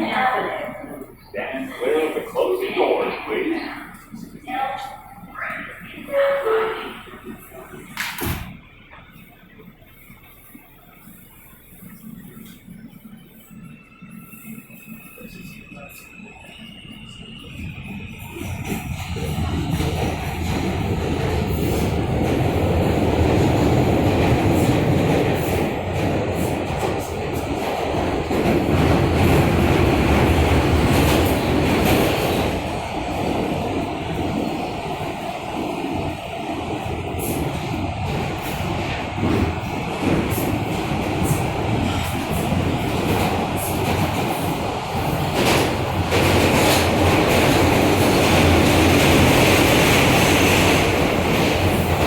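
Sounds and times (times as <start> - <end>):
subway wheels rumbling on rail: 0.0 - 52.0
rail clacks: 14.9 - 52.0.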